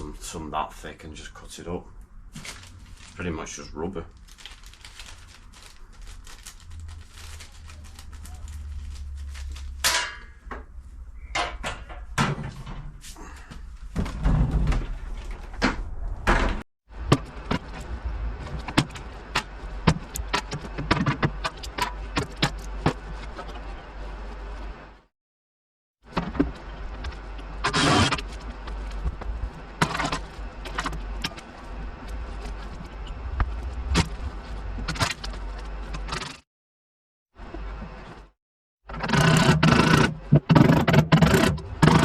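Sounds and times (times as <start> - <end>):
steady low hum: 26.2 - 36.1.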